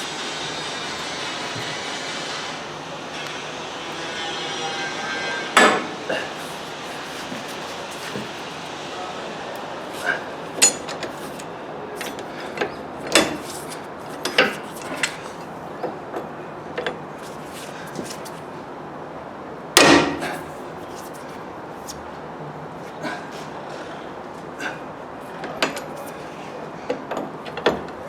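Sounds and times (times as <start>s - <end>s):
metal tools clinking: 10.5s - 12.3s
metal clatter: 10.6s - 12.2s.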